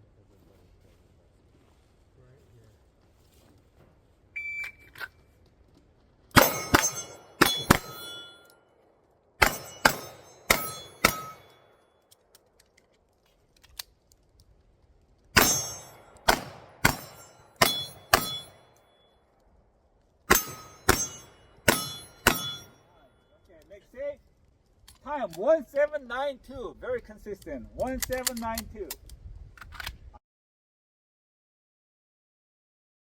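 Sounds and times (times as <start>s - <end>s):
shot timer beep: 4.4s - 4.9s
pistol shots: 6.3s - 8.3s, 9.4s - 11.6s, 15.4s - 18.6s, 20.3s - 22.8s
steel targets ringing: 6.3s - 8.7s, 9.4s - 11.9s, 15.4s - 19.2s, 20.3s - 23.3s.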